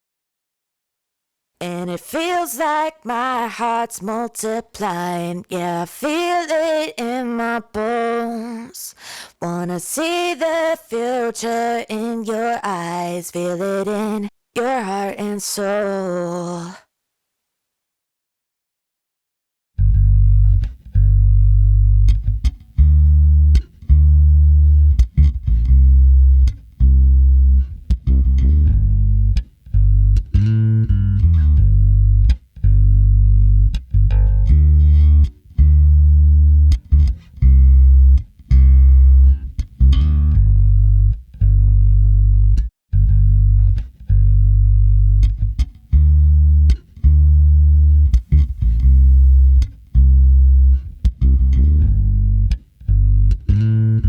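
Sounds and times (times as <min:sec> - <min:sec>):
bass guitar plucked notes: 0:19.8 - 0:54.0.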